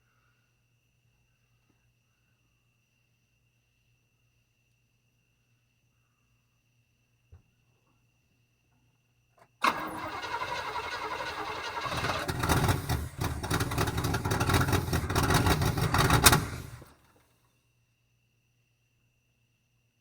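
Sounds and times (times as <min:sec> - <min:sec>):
car engine cranking on starter: 0:09.6 - 0:17.1.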